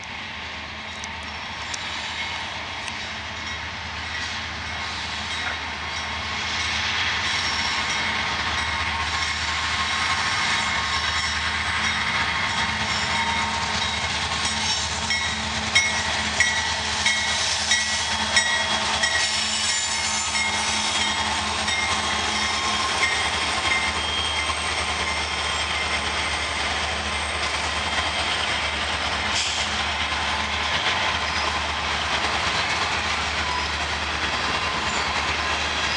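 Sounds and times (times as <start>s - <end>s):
diesel locomotive hum: 0.0s - 35.9s
wheels rumbling on rail: 0.0s - 35.9s.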